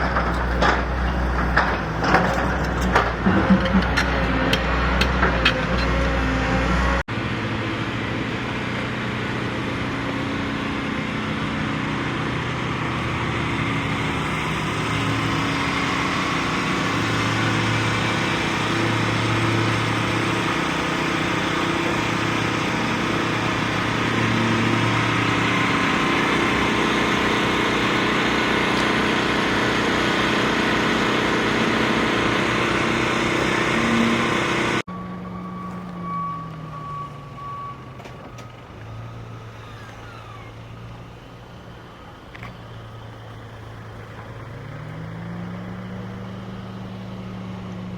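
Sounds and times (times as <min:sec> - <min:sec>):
heavy machinery engine running: 0:00.0 - 0:47.9
reversing beeper: 0:32.4 - 0:40.6.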